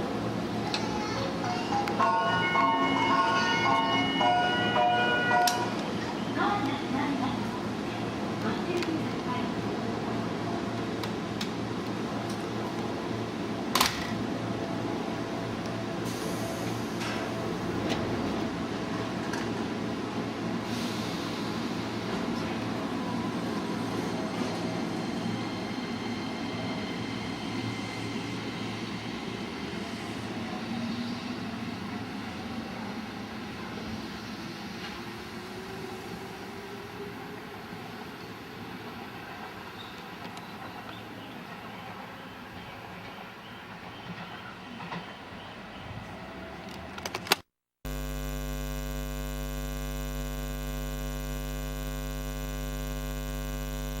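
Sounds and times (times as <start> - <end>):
station noise: 1.4 - 7.5, 47.9 - 54.0
electric drive whining: 47.9 - 54.0
electrical mains hum: 47.9 - 54.0.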